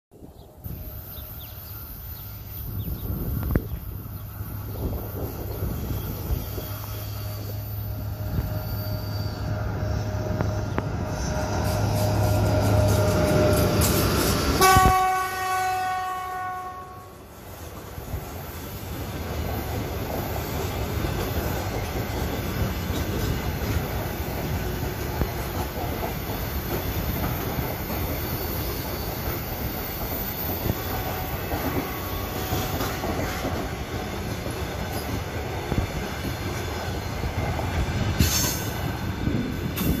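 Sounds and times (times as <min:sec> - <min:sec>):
electric locomotive running past: 0:00.2 - 0:40.0
train wheels rolling on rails: 0:00.2 - 0:40.0
train horn blast: 0:14.6 - 0:17.2, 0:31.3 - 0:33.7.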